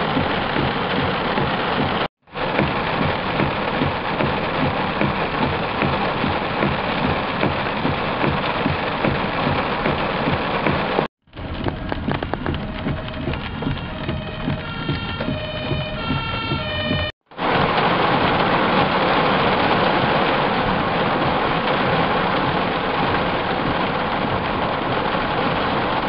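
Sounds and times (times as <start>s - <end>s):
heavy rain pelting: 0.0s - 26.0s
raindrops splashing: 0.0s - 26.0s
faint siren: 12.5s - 17.2s.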